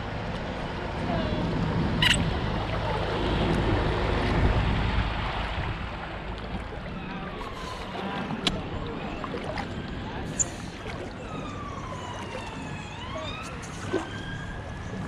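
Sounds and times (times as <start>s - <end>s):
wind rumble on microphone: 0.0s - 10.3s
water splashing around kayak: 0.0s - 15.0s.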